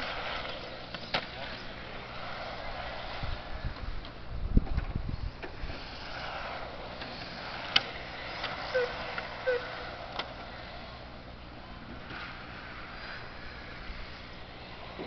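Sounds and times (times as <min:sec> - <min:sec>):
toy car motor hum: 0:08.4 - 0:10.1.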